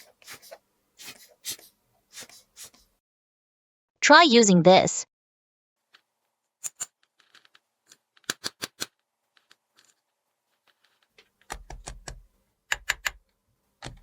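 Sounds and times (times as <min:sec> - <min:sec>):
plastic toy pieces clicking: 0:06.6 - 0:10.0.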